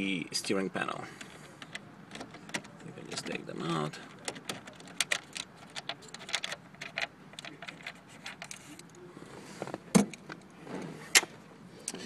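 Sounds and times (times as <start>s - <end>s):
screwdriver clicking and scraping: 4.3s - 8.9s.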